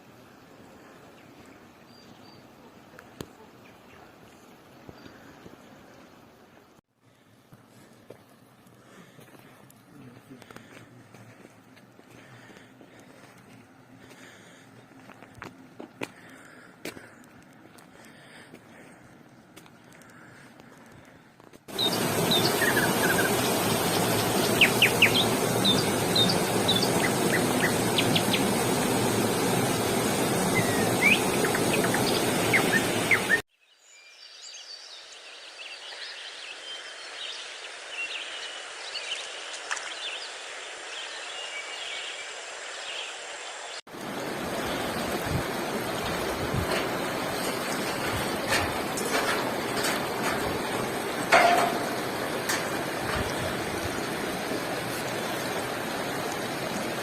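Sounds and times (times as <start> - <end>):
small birds chirping: 21.7 - 43.2.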